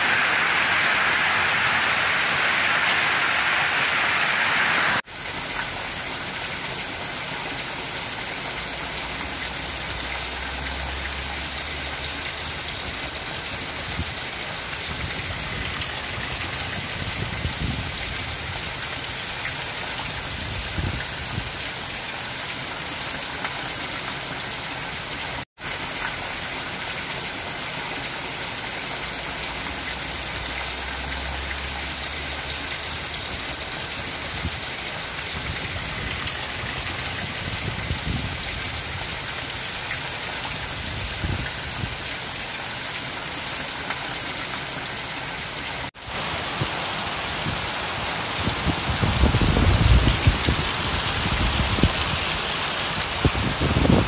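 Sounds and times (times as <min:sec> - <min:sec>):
heavy rain on metal roof: 0:00.0 - 0:54.0
water pouring onto grass: 0:25.6 - 0:47.7, 0:48.4 - 0:54.0.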